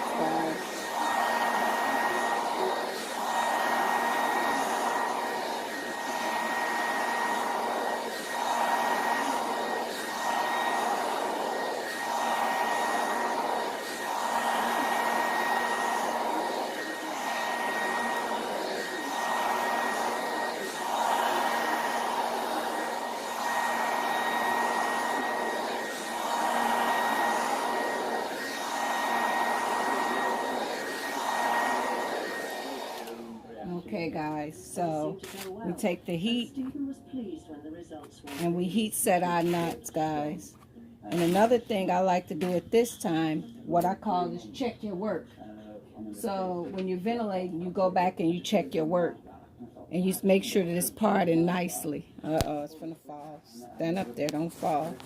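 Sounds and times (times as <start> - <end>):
blow dryer running: 0.0 - 35.8, 41.1 - 44.2.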